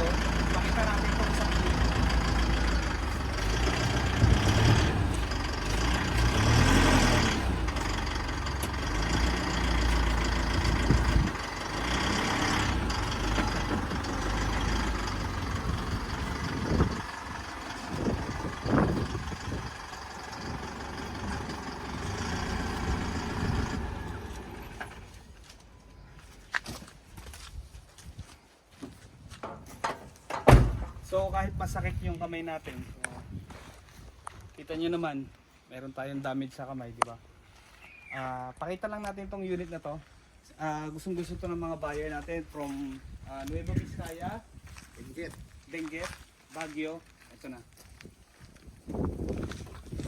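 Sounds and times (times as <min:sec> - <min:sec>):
heavy vehicle engine rumble: 0:00.0 - 0:26.4, 0:30.0 - 0:33.5, 0:41.1 - 0:47.3, 0:47.9 - 0:50.0.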